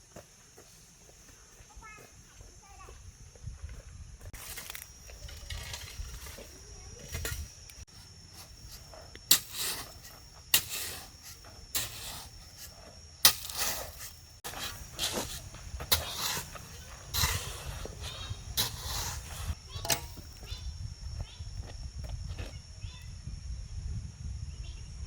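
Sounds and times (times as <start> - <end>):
short hissing scrapes: 8.6 - 19.6.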